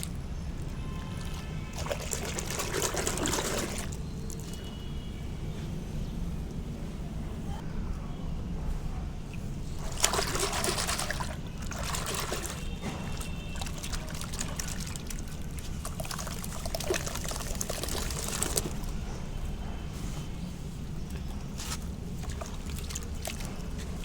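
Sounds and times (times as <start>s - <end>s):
water trickling: 0.0s - 4.7s, 9.6s - 19.7s, 20.7s - 24.0s
sand-cement crackling in water: 9.7s - 19.4s, 20.1s - 24.0s.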